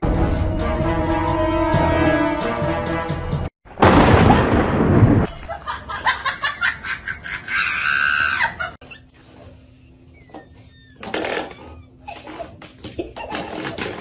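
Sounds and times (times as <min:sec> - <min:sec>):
loud thunderclap: 0:03.7 - 0:05.3.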